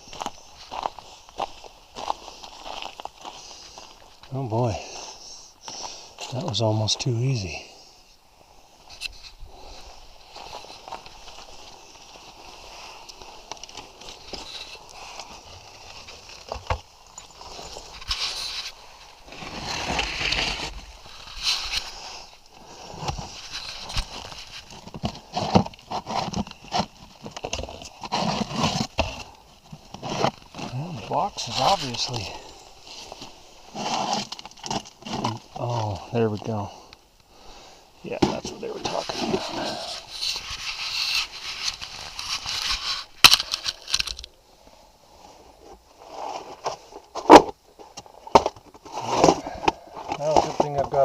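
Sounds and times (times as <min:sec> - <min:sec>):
plastic box rustling and crunching: 0:10.3 - 0:22.0, 0:22.9 - 0:36.6, 0:38.1 - 0:44.4
box knocking and scraping: 0:38.1 - 0:40.1.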